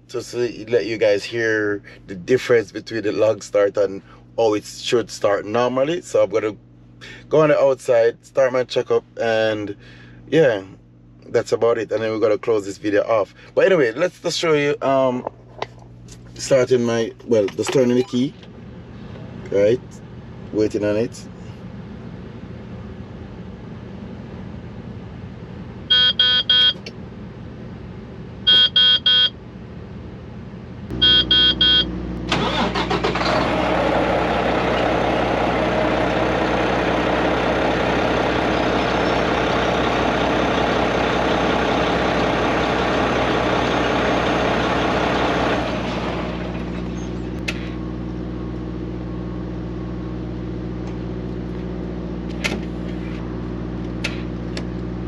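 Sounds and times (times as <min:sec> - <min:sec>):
diesel engine running: 0:00.0 - 0:22.3, 0:30.2 - 0:55.0
diesel engine idling: 0:09.2 - 0:10.2, 0:30.9 - 0:55.0
electronic warning beeps: 0:25.9 - 0:26.8, 0:28.5 - 0:29.3, 0:31.0 - 0:31.9.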